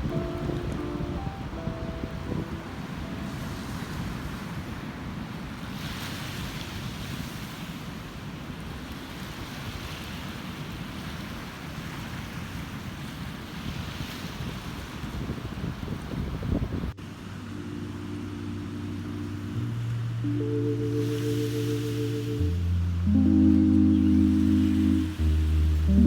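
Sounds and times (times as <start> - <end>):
wind rumbling on microphone: 0.0 - 8.0, 8.7 - 17.0
ocean surf washing on beach: 0.0 - 19.6, 20.8 - 23.3.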